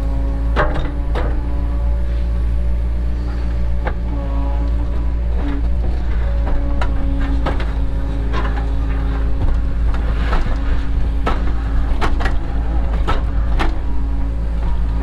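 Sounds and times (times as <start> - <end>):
excavator diesel engine running: 0.0 - 15.0
hydraulic whine: 0.0 - 15.0
sharp knocks and clanks: 6.2 - 14.0.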